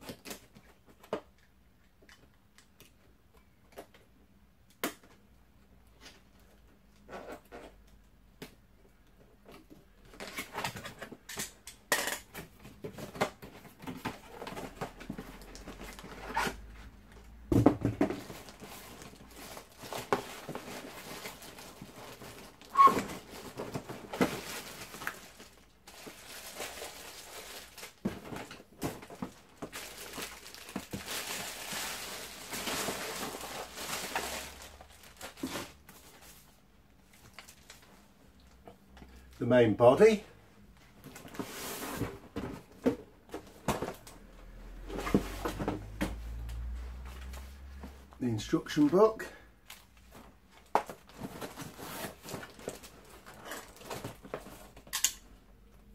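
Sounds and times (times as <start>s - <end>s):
cardboard rustling: 12.4s - 38.2s, 49.7s - 54.9s
plastic packaging crinkling: 18.1s - 38.6s, 49.6s - 55.2s.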